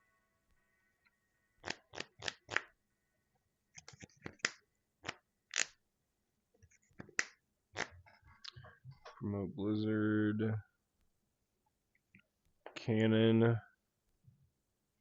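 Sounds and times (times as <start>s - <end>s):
trading cards scraping and snapping: 1.6s - 2.7s, 3.8s - 5.8s.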